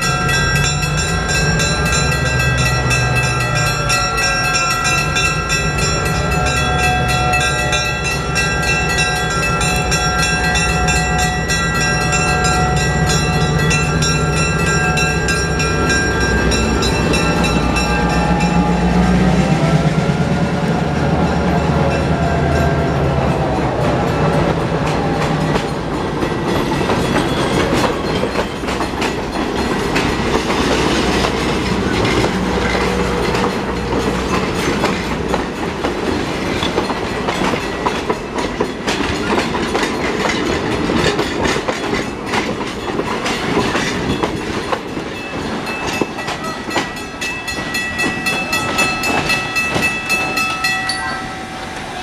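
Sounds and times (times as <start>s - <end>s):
high steady ringing: 0.0s - 19.0s, 44.4s - 52.0s
train wheels clicking: 0.0s - 19.4s, 21.1s - 51.9s.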